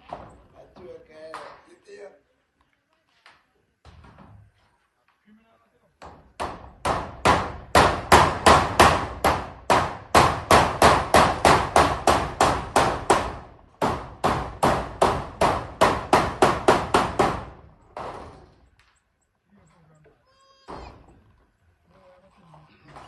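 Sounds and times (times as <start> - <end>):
hammer driving nails: 6.0 - 18.4.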